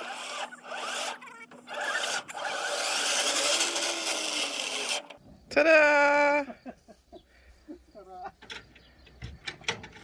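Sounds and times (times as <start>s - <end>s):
wavering squeaks: 0.0s - 5.1s
tractor engine rasping: 0.0s - 5.2s.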